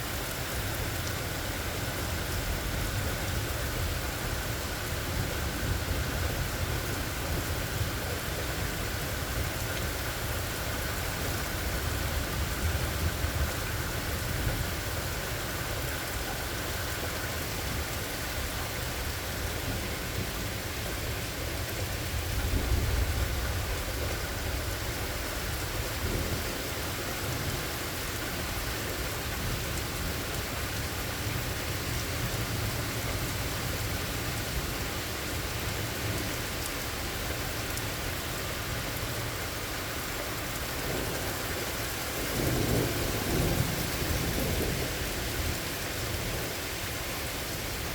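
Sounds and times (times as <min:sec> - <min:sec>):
steady rain falling: 0:00.0 - 0:47.9
low rolling thunder: 0:21.9 - 0:26.8, 0:40.8 - 0:46.5.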